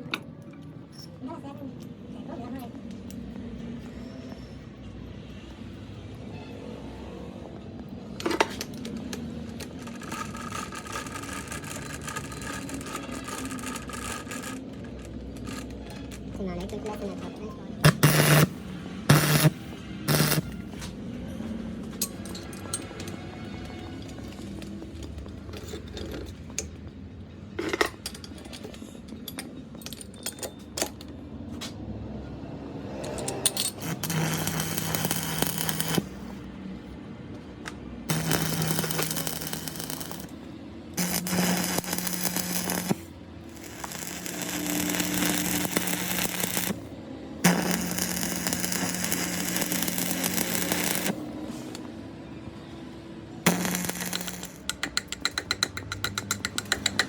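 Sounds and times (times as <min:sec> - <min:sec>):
power tool motor hum: 0:17.8 - 0:20.5, 0:38.1 - 0:40.3, 0:41.0 - 0:46.8, 0:47.5 - 0:51.2, 0:53.5 - 0:54.6
metal parts clicking and knocking: 0:21.9 - 0:23.4, 0:27.6 - 0:31.2, 0:33.0 - 0:36.0, 0:53.5 - 0:57.0.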